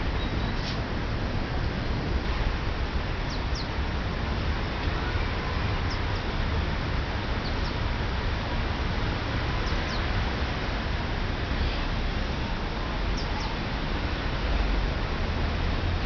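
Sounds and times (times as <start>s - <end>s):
small bird chirping: 9.6s - 10.0s.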